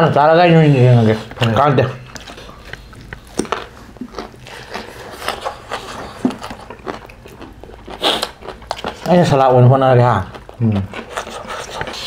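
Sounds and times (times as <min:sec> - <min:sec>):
chewing and wet lip smacks: 0:01.2 - 0:09.2.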